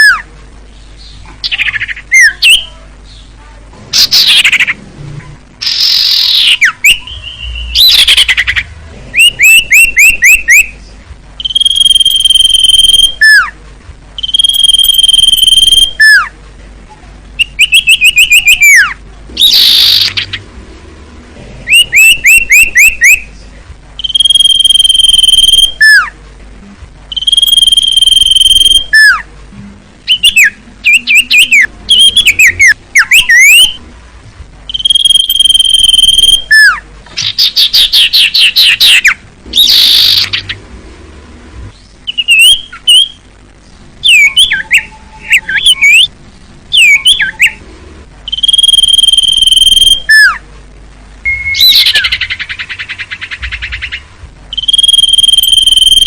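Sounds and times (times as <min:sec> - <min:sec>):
bird whistling song: 0:01.0 - 0:02.7, 0:04.0 - 0:04.8, 0:05.6 - 0:10.8, 0:11.4 - 0:13.6, 0:14.2 - 0:16.3, 0:17.4 - 0:20.4, 0:21.6 - 0:23.4, 0:24.0 - 0:26.1, 0:27.1 - 0:29.3, 0:30.1 - 0:33.8, 0:34.7 - 0:40.6, 0:41.8 - 0:43.2, 0:44.0 - 0:46.1, 0:46.7 - 0:47.6, 0:48.3 - 0:50.4, 0:51.2 - 0:56.0.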